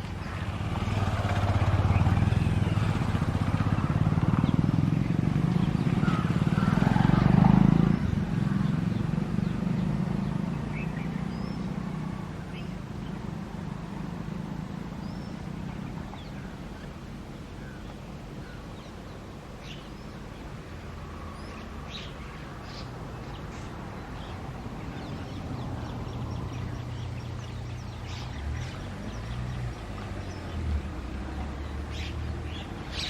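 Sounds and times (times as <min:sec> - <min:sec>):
birds chirping and calling: 0:00.0 - 0:13.2, 0:21.3 - 0:33.0.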